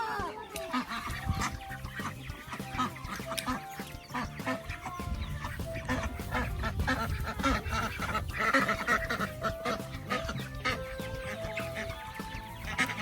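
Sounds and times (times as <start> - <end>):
background music with held notes: 0.0 - 13.0
ducks quacking: 0.0 - 13.0.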